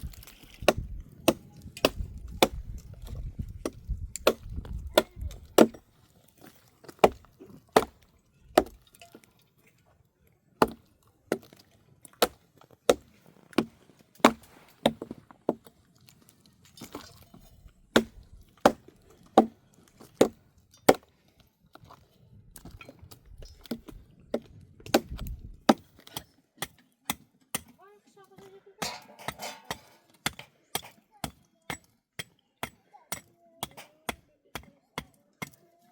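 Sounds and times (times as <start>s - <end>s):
axe chopping wood: 0.1s - 5.8s, 6.9s - 8.0s, 8.6s - 8.8s, 10.6s - 11.5s, 12.2s - 15.6s, 17.9s - 19.6s, 20.2s - 21.1s, 23.7s - 27.8s, 28.8s - 35.6s.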